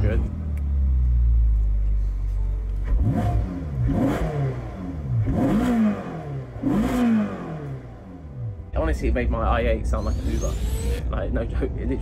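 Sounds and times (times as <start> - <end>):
car engine revving: 2.8 - 8.6, 9.9 - 11.1.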